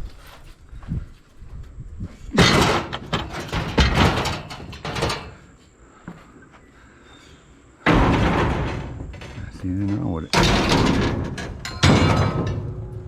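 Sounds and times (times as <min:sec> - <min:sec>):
metal rattling and banging: 0:02.4 - 0:05.5, 0:07.8 - 0:13.0.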